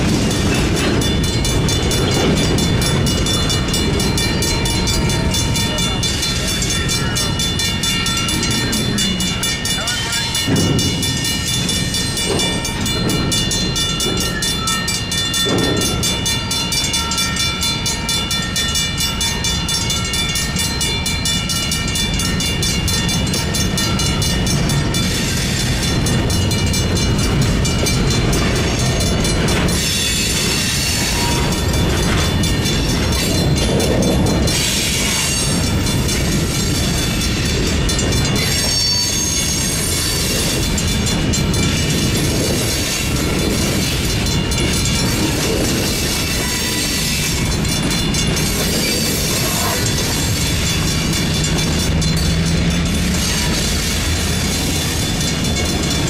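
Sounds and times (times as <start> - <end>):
crossing bell ringing: 0.0 - 56.0
train rolling rumble: 0.0 - 56.0.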